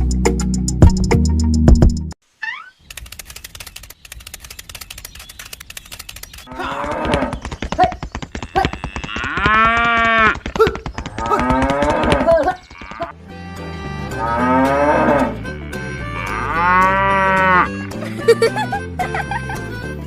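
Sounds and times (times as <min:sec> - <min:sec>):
cattle mooing: 0:06.5 - 0:07.3, 0:08.5 - 0:10.4, 0:11.2 - 0:13.2, 0:14.0 - 0:17.7.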